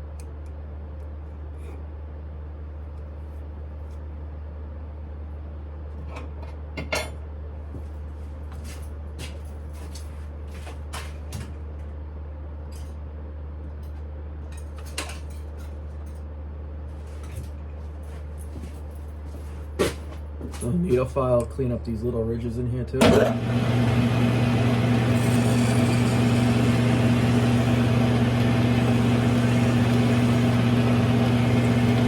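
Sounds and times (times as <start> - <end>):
lathe humming: 23.0 - 32.0.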